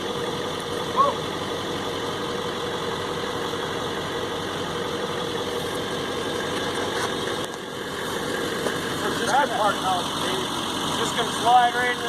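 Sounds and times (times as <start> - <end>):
truck engine running at low revs: 0.0 - 12.0.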